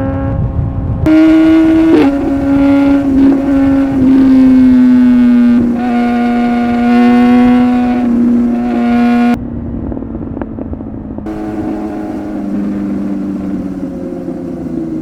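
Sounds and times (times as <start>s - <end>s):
motorcycle engine at high revs: 1.1s - 9.4s, 11.3s - 15.0s.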